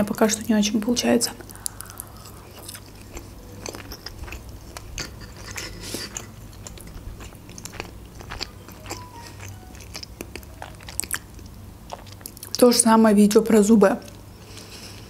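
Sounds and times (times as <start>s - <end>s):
person chewing crisp food: 1.4s - 12.6s.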